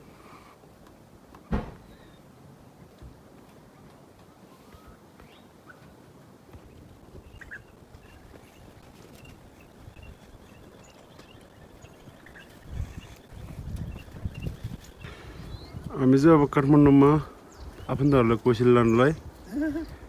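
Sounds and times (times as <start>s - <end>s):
faint bird chirps: 6.7s - 15.9s.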